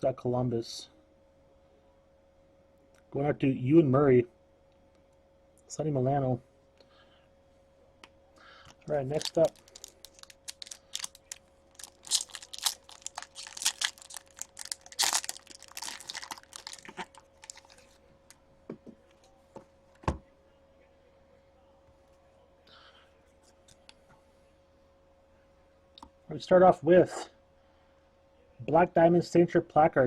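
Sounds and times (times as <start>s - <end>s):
wrapper crinkling and tearing: 8.9s - 18.0s.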